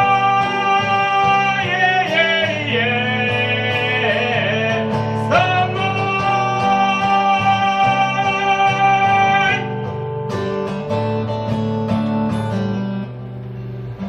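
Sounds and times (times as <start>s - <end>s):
person singing long note: 0.0s - 9.7s
acoustic guitar chords: 0.0s - 14.0s.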